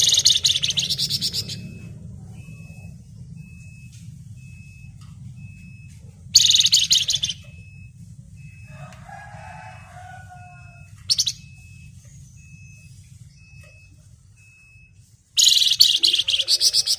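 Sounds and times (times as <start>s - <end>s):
songbird harsh chattering: 0.0s - 1.7s, 6.4s - 7.4s, 15.4s - 16.9s
low drawn-out bird notes: 0.0s - 14.0s, 15.4s - 16.9s
steady low hum: 0.0s - 16.9s.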